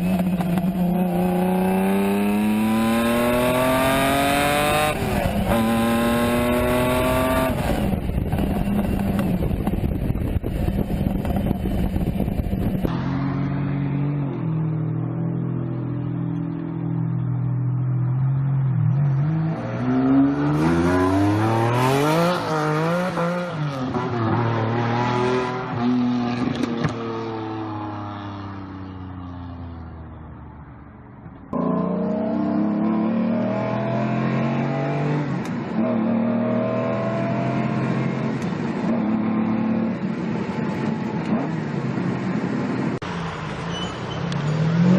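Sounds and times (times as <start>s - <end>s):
car engine revving: 0.0s - 9.9s, 18.8s - 28.5s, 31.5s - 40.2s.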